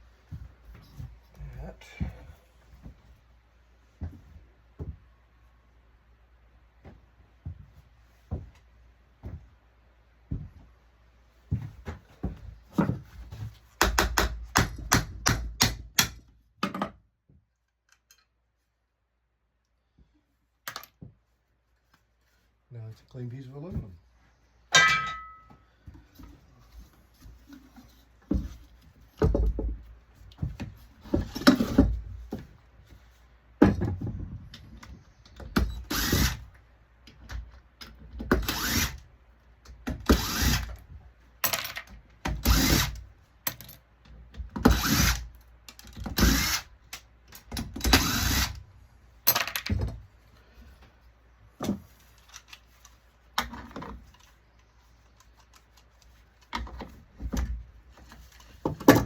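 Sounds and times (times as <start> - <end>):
power drill in short bursts: 35.8 - 36.4, 38.4 - 39.0, 40.1 - 40.7, 44.7 - 45.2, 46.2 - 46.7, 47.9 - 48.6.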